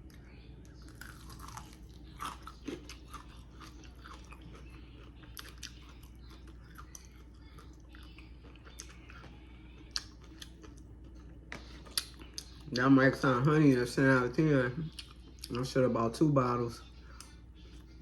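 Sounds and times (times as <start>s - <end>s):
chewing crispy fried chicken: 0.0s - 18.0s.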